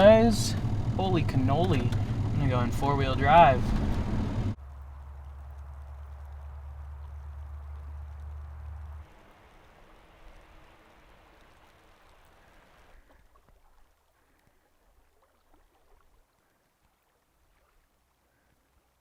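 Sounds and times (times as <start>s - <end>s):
faint ticks: 10.2s - 14.7s.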